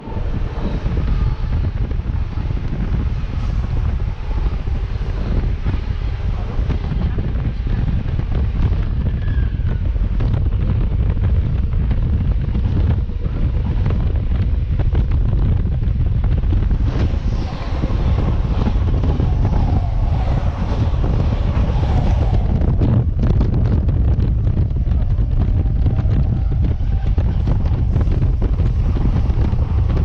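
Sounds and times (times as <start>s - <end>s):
train rumbling: 0.0s - 30.0s
wind buffeting microphone: 0.0s - 30.0s
faint whine sliding down: 16.1s - 30.0s.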